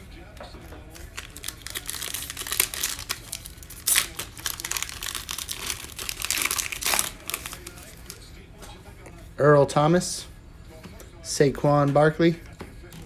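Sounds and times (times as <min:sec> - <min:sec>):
plastic wrapper crinkling and tearing: 0:00.9 - 0:08.2.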